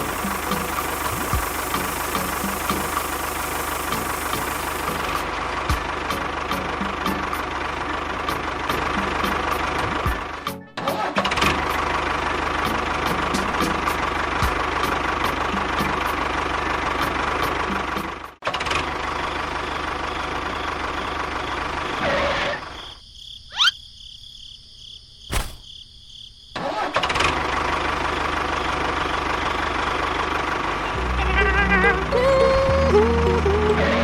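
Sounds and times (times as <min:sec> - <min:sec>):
tractor engine running: 0:00.0 - 0:22.8, 0:26.6 - 0:34.0
sharp click: 0:25.3 - 0:25.7.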